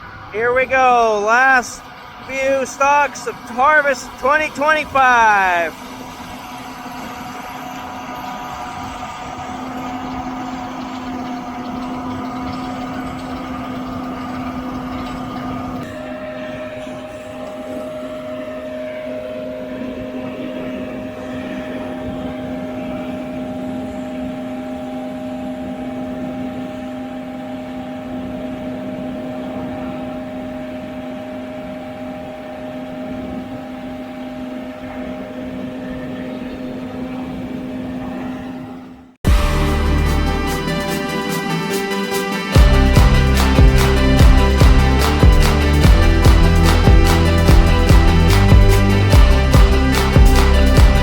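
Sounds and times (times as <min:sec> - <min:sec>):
combine harvester running: 0:00.0 - 0:17.6.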